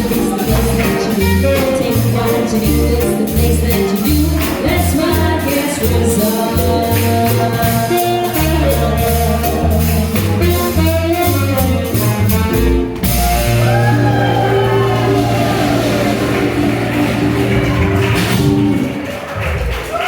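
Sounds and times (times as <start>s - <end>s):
swing jazz band playing: 0.0s - 20.0s
pulsing bass line: 12.0s - 19.5s.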